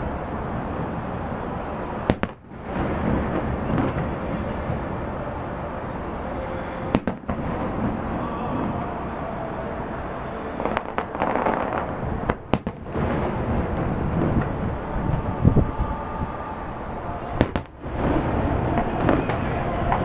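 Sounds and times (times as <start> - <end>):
fireworks bursts rumbling: 0.0 - 20.0
sharp firework cracks: 2.1 - 4.9, 6.9 - 8.1, 10.6 - 14.6, 17.4 - 20.0.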